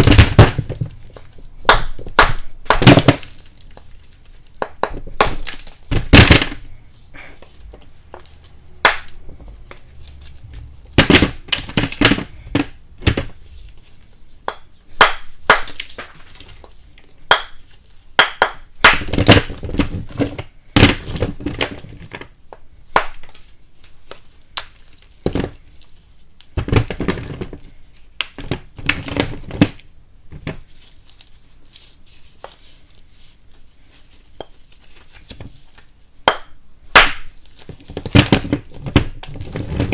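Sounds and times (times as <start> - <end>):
chalk cracking and crunching: 2.7 - 6.0.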